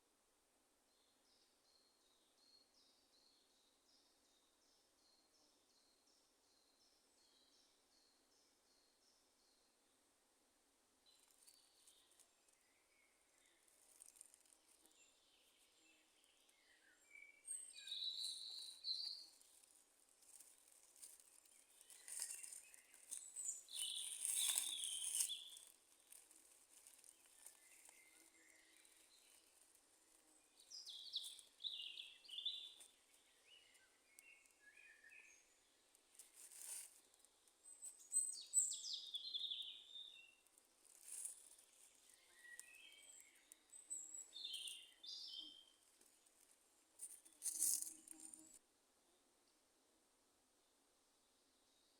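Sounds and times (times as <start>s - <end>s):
birds singing chirping phrases: 15.1s - 19.3s.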